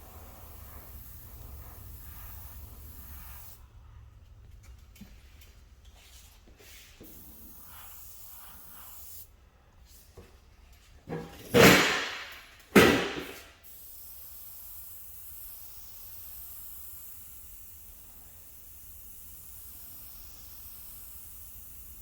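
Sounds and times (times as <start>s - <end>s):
compressed air spray blasts: 0.0s - 3.7s, 6.6s - 9.3s, 11.5s - 22.0s
faint hiss: 0.0s - 3.7s, 6.6s - 10.2s, 13.2s - 22.0s.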